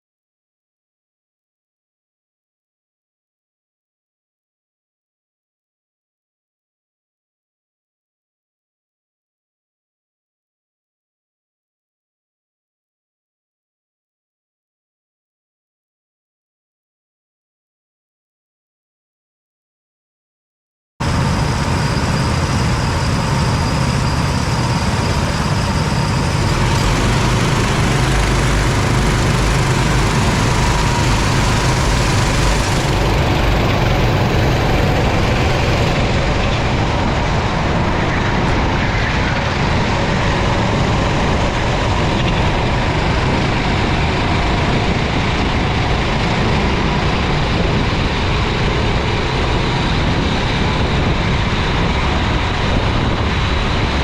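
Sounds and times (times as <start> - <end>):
kart engine running: 21.0 - 37.9, 39.3 - 47.4
steady rush of noise: 21.0 - 54.0.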